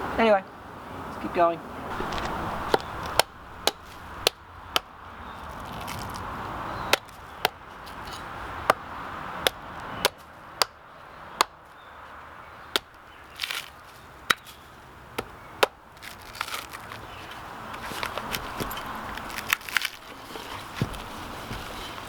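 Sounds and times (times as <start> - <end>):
tool knocking bark off log: 1.9 - 6.2, 12.7 - 13.7.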